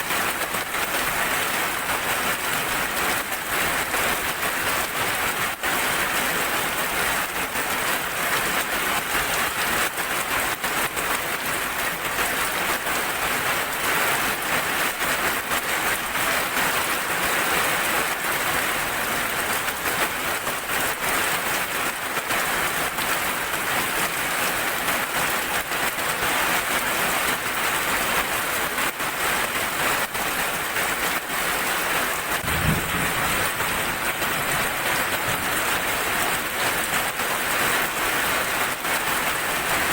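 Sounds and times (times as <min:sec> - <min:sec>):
heavy rain: 0:00.0 - 0:39.9
low thump: 0:32.4 - 0:34.3.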